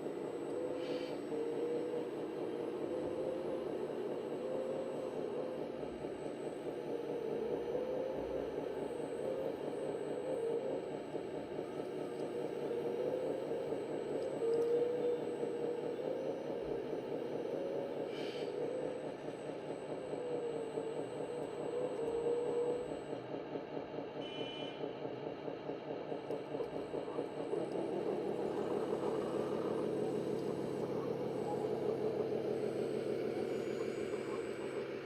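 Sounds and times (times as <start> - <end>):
model tractor engine drone: 0.0 - 35.0.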